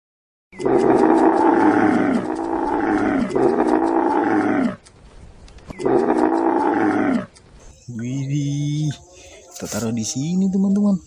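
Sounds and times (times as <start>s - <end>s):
camel bellowing: 0.6s - 4.8s, 5.7s - 7.4s.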